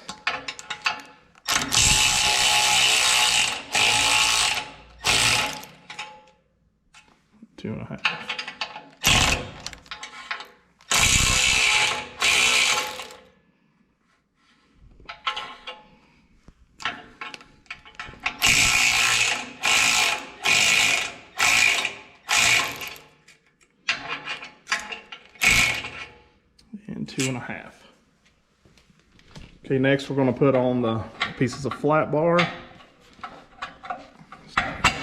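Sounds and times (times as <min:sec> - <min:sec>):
ratchet wrench clicking: 0:18.4 - 0:23.0.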